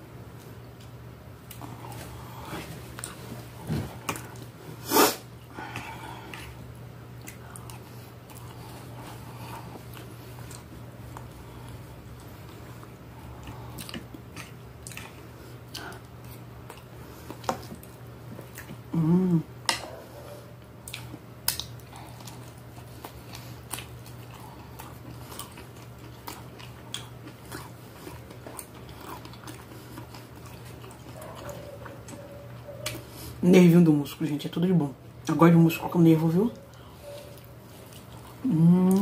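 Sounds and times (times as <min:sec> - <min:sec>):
steady low hum: 0:00.0 - 0:39.0
chewing and biting food: 0:05.4 - 0:19.0, 0:20.5 - 0:33.2, 0:36.6 - 0:39.0
person humming: 0:18.9 - 0:19.6, 0:38.4 - 0:39.0.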